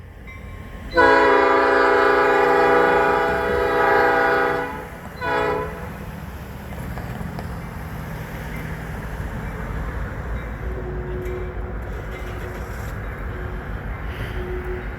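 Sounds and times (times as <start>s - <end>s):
train rolling rumble: 0.0s - 14.9s
train horn blasts: 0.9s - 6.0s.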